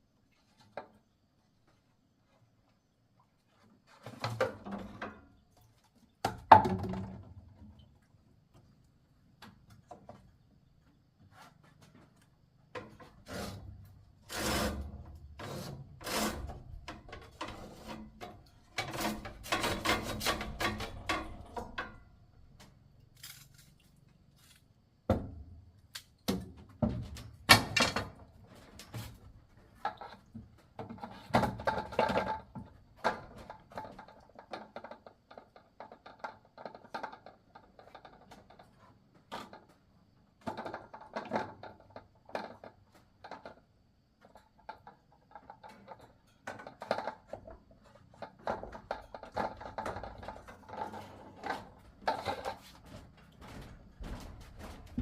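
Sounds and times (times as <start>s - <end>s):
wood knocking and clattering: 6.2s - 7.6s, 44.3s - 55.0s.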